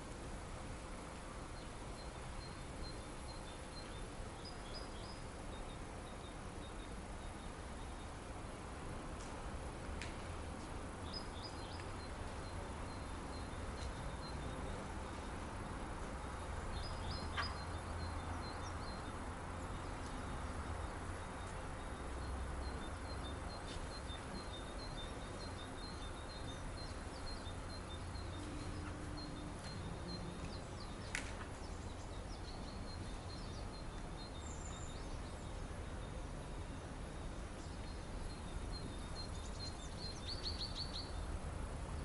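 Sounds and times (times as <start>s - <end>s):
outdoor hiss with low rumble: 0.0s - 42.0s
small birds chirping: 11.0s - 36.6s, 37.2s - 41.2s.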